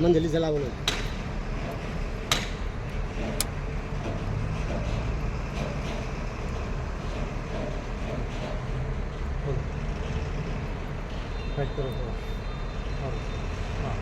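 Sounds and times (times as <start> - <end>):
sharp clicks: 3.2 - 3.6.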